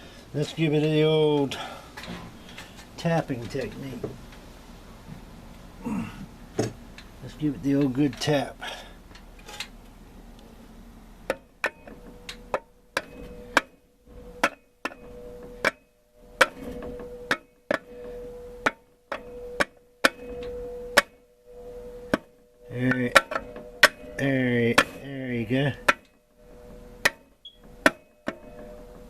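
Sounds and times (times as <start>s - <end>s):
metal case ringing tone: 11.2s - 29.0s
sharp metal taps: 14.4s - 15.8s, 25.8s - 26.2s.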